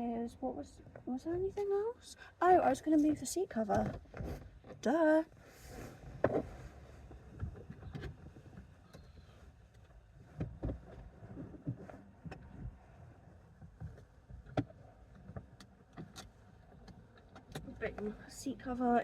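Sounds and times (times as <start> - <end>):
fabric rustling: 5.4 - 7.3
light knocks and bumps: 6.1 - 12.8.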